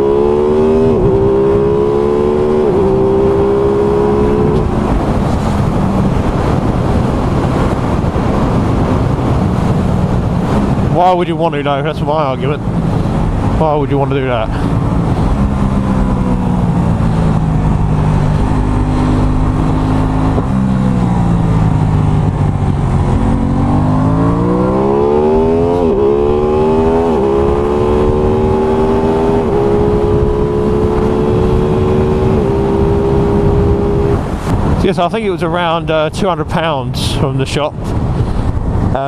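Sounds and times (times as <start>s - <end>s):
motorcycle engine revving and shifting: 0.0s - 11.0s, 14.5s - 34.8s.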